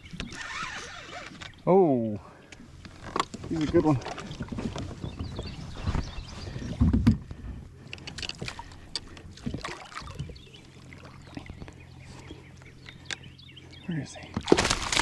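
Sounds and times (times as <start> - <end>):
knocks and clicks on a kayak: 2.5 - 10.5.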